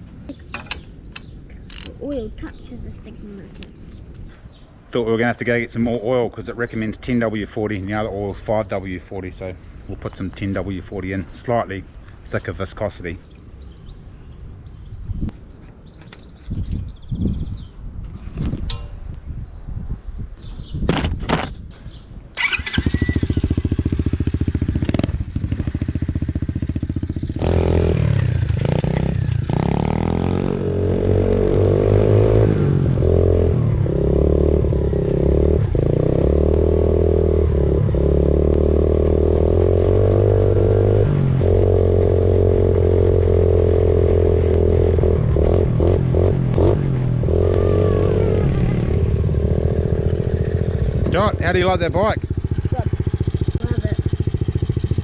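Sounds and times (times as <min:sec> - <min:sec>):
small motorbike engine revving: 0:22.4 - 0:55.0.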